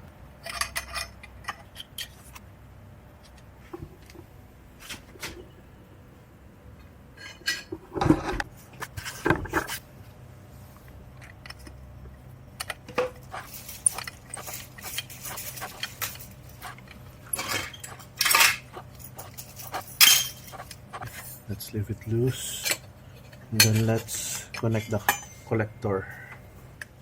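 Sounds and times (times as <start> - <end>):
metal pipes clinking and clanking: 12.9 - 21.4, 22.0 - 25.5.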